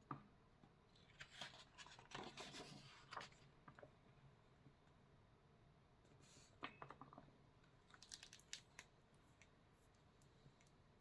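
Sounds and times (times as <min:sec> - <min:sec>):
faint small clicks and taps: 0:06.6 - 0:10.8.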